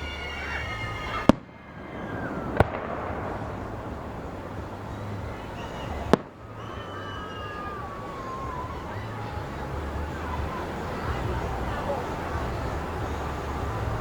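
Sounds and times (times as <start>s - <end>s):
fireworks whistling: 0.0s - 10.1s
fireworks bursting with bangs: 0.9s - 10.0s.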